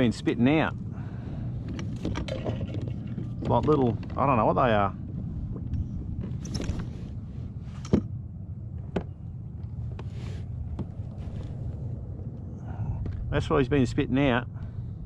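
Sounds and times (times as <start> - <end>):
wind rumble on microphone: 0.0 - 15.0
handling knocks and rustles: 1.6 - 8.1.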